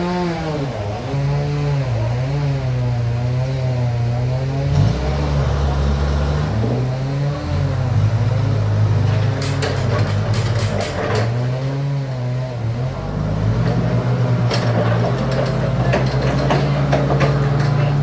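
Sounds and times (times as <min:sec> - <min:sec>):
engine running: 0:00.0 - 0:18.0
clattering knocks: 0:13.6 - 0:18.0.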